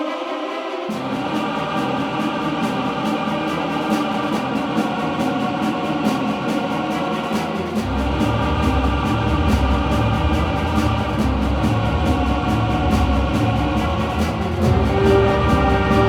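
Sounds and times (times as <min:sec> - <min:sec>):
drum beat: 0:03.1 - 0:16.0
bass: 0:07.8 - 0:16.0
kazoos chorus: 0:14.5 - 0:16.0.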